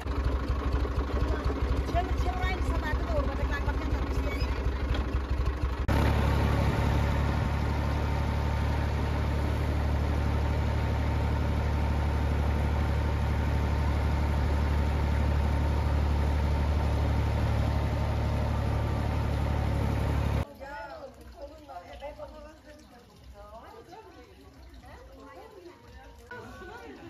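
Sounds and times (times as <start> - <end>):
engine humming: 0.0 - 20.5.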